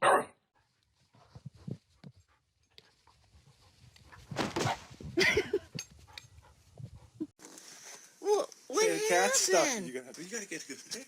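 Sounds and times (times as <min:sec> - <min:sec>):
quiet dog sounds: 0:00.1 - 0:04.4.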